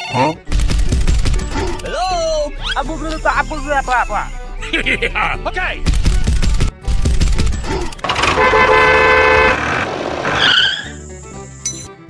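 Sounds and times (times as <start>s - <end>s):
heavy low rumbling: 0.4s - 10.3s
short wavering tone: 1.8s - 6.9s
vehicle horn honking: 8.0s - 9.9s.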